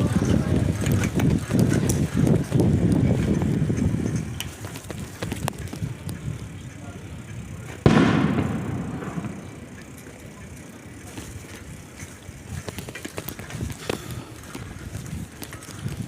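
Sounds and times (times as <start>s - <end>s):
loud firework bang: 7.8s - 9.7s.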